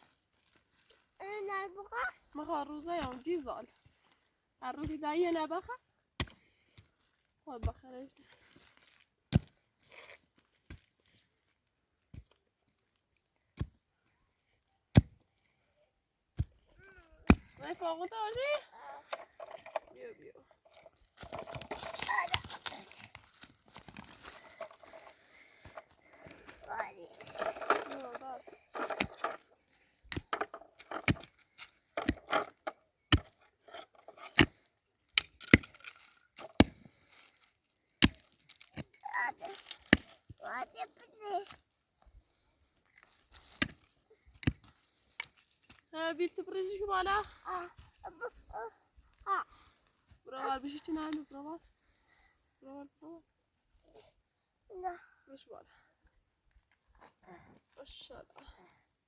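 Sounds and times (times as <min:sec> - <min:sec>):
faint crunching scrape: 0:20.7 - 0:29.7
heavy tool striking ground: 0:20.7 - 0:36.9, 0:38.0 - 0:40.4, 0:43.4 - 0:45.5.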